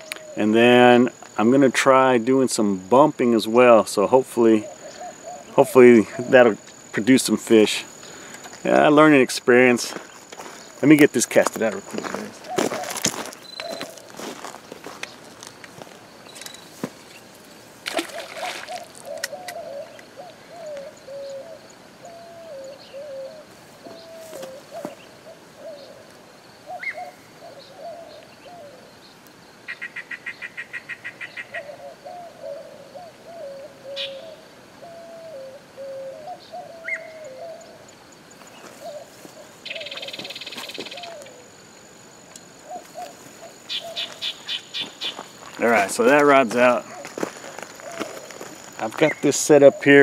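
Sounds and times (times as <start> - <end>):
bird cooing: 0.0 - 0.6, 4.2 - 8.6, 11.6 - 15.2, 17.9 - 29.0, 31.1 - 41.7, 42.5 - 45.9, 46.7 - 50.0.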